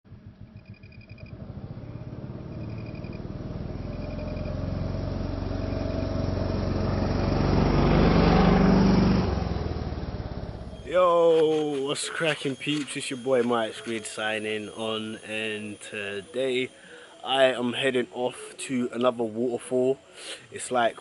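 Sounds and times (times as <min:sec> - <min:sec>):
motorbike engine running: 0:00.1 - 0:10.9.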